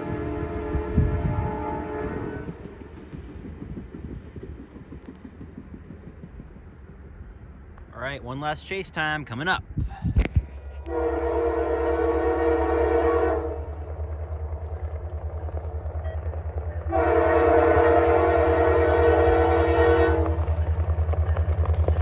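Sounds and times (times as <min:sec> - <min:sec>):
locomotive air horn blasts: 0:00.0 - 0:02.5, 0:10.8 - 0:13.8, 0:16.8 - 0:20.6.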